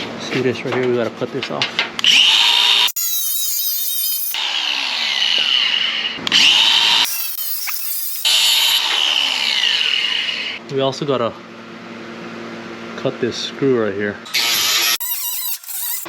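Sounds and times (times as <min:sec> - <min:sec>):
power tool cutting with high whine: 0:02.0 - 0:10.6, 0:14.3 - 0:16.0.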